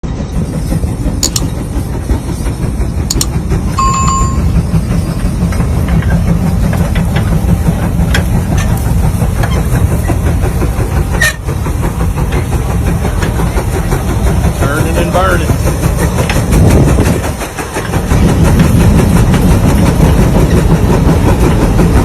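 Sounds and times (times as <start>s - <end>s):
tractor engine rumbling: 0.0s - 22.0s
clicks: 1.2s - 1.5s, 3.1s - 3.3s
short high-pitched tone: 3.8s - 4.5s.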